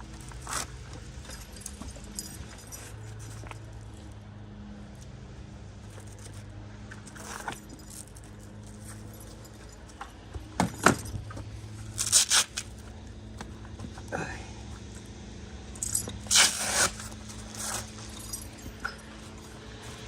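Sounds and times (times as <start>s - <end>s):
low machine hum: 0.0s - 20.0s
metal gear jangling: 0.1s - 3.4s, 7.0s - 12.4s, 15.8s - 20.0s.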